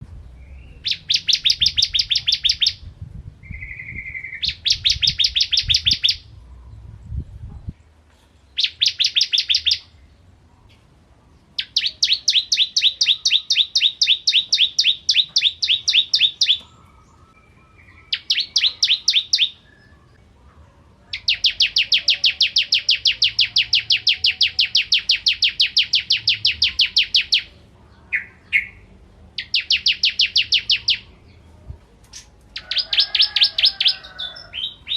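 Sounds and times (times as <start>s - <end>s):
bird singing rapid high notes: 0.4s - 6.3s, 8.6s - 9.9s, 11.6s - 20.2s, 21.2s - 31.2s.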